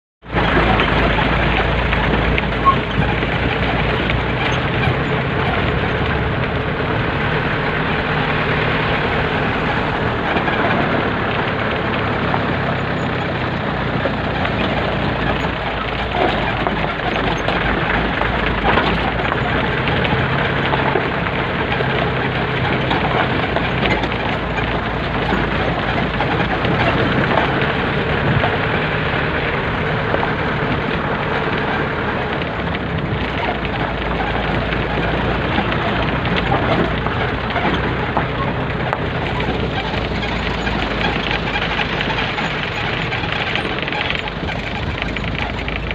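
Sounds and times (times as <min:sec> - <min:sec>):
road noise: 0:00.2 - 0:45.9
vehicle engine running: 0:00.2 - 0:45.9.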